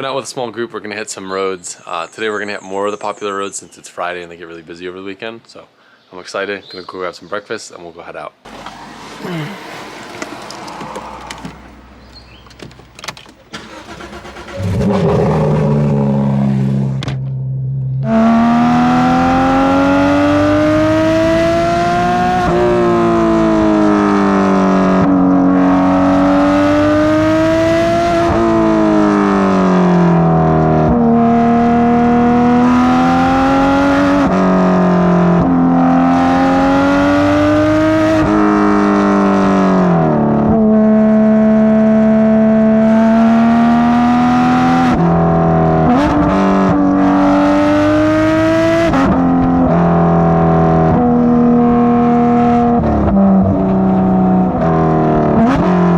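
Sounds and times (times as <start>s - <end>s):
car engine starting and revving: 8.5s - 55.9s.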